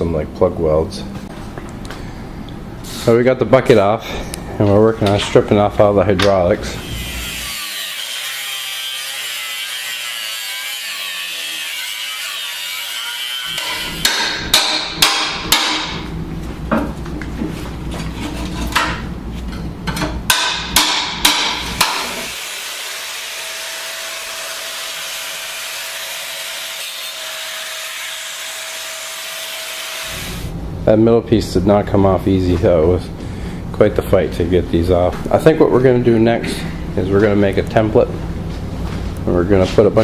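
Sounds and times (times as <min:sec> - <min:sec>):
hammer striking steel: 0:12.5 - 0:16.0, 0:19.9 - 0:22.2.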